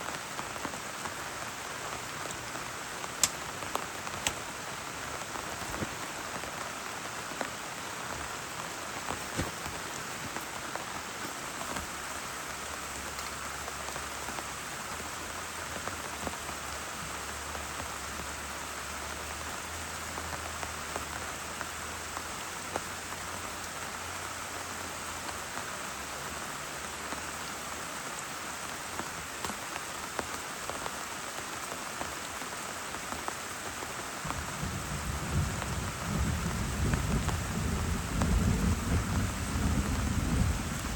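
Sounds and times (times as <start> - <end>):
heavy rain: 0.0 - 40.9
thunder rumble: 34.2 - 40.9.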